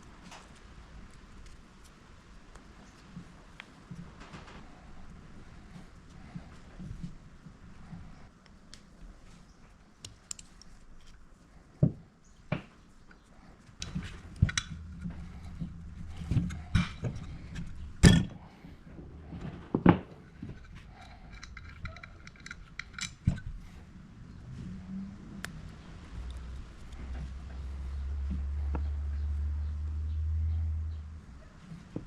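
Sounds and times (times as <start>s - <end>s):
low steady hum: 0.0s - 32.0s
hand tools and metal parts knocking: 13.8s - 18.7s, 19.3s - 23.7s.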